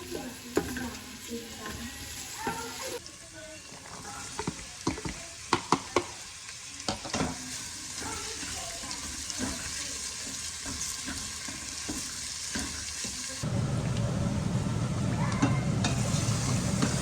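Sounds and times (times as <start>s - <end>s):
food sizzling in a frying pan: 0.0s - 17.0s
utensil stirring and scraping: 7.1s - 13.4s.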